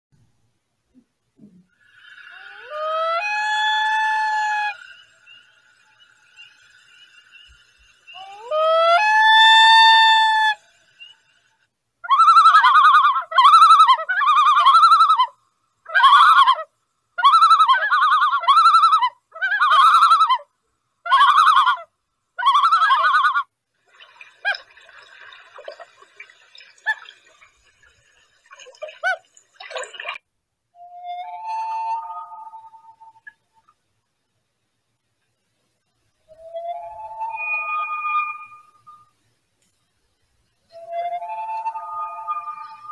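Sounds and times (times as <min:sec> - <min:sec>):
bird calling: 0:06.4 - 0:11.2, 0:40.7 - 0:42.9.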